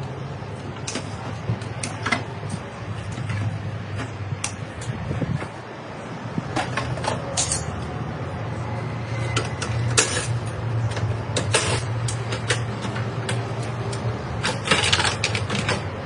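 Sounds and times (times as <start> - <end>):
low engine hum: 0.0 - 16.0
metal clanks and knocks: 6.5 - 7.9, 9.2 - 13.7.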